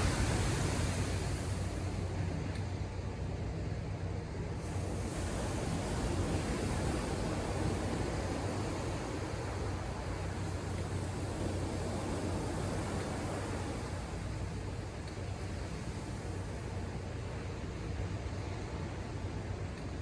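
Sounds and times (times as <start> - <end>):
ocean surf breaking: 0.0 - 1.7.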